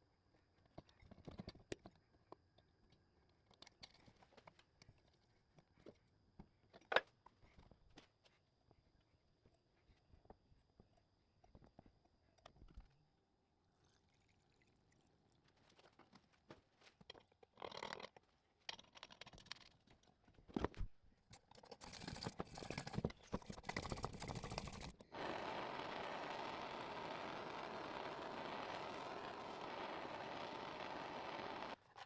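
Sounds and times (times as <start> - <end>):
pressure lantern hissing: 23.6 - 31.8.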